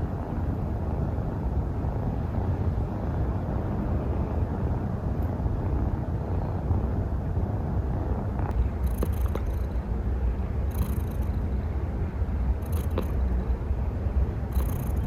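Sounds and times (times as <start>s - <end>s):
kitten purring: 8.4s - 11.6s, 12.4s - 13.6s, 14.4s - 15.0s.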